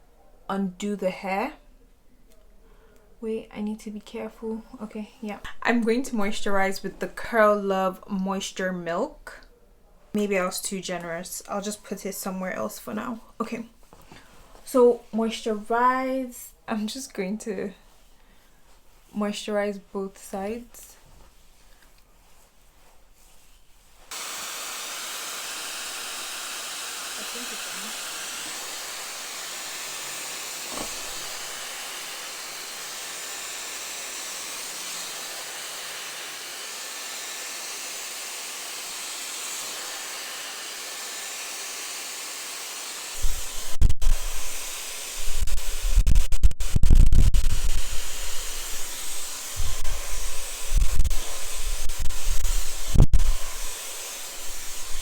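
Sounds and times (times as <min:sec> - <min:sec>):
hair dryer blowing: 0:24.1 - 0:55.0.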